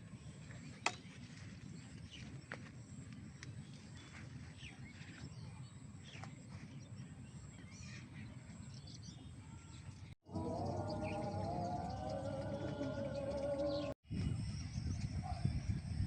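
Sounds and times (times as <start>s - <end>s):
bird chirps and calls: 4.0s - 13.9s
steady low rumble: 10.3s - 16.0s.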